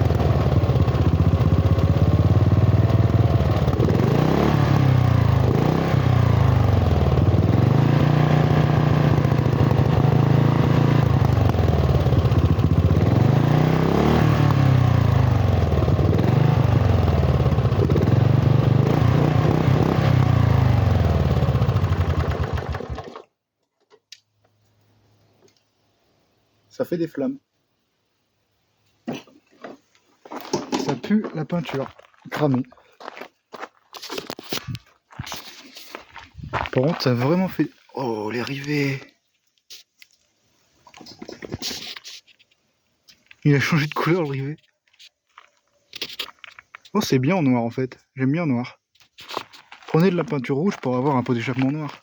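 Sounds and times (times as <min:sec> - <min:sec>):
lawn tractor engine revving: 0:00.0 - 0:23.3.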